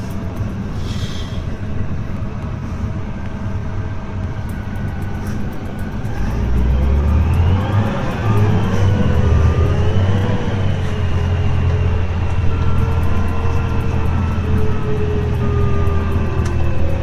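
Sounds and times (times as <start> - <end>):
tractor engine revving: 4.4 - 17.0.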